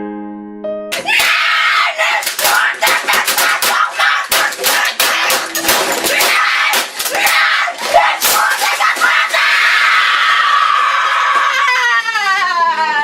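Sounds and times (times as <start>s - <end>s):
hard banging and slapping hits: 0.9s - 9.7s
boy screaming: 1.0s - 5.3s, 6.1s - 13.0s.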